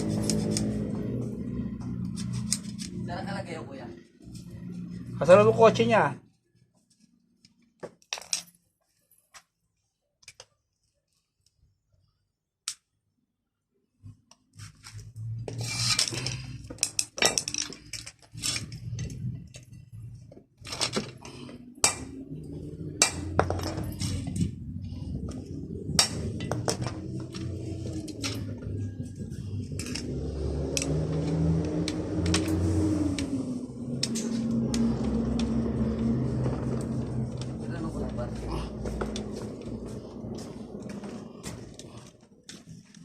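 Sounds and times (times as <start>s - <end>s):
metallic clinks and clatter: 15.5s - 21.3s, 23.2s - 25.3s.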